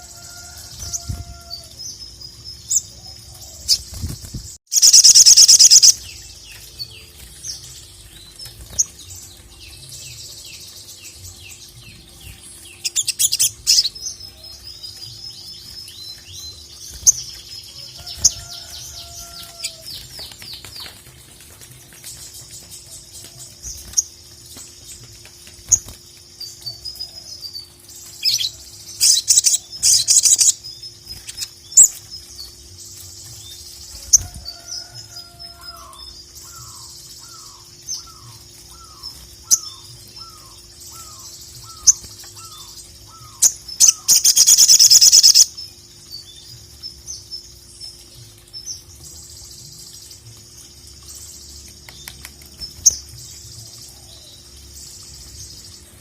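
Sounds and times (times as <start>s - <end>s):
bird chattering song: 2.6s - 19.8s, 28.2s - 32.6s, 35.7s - 46.3s.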